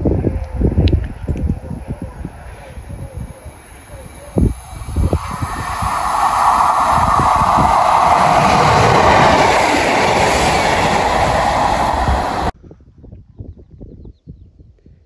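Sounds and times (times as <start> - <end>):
diesel train passing: 2.3 - 12.5.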